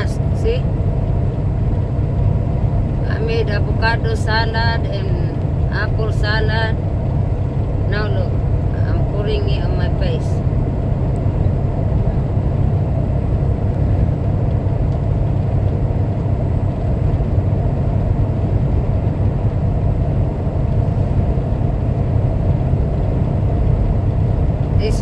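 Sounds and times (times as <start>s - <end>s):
road noise inside cab: 0.0s - 25.0s
truck engine rumble: 0.0s - 25.0s.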